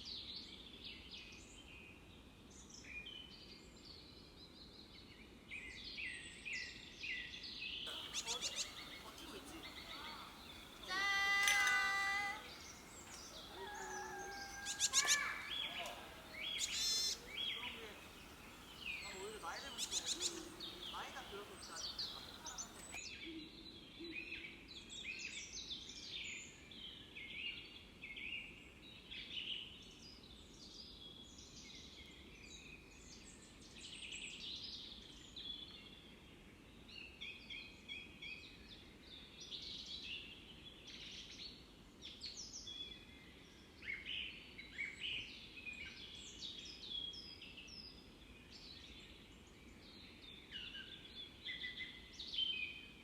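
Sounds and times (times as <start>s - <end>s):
faint steady background noise: 7.9s - 23.8s
small birds singing and chirping: 7.9s - 24.3s.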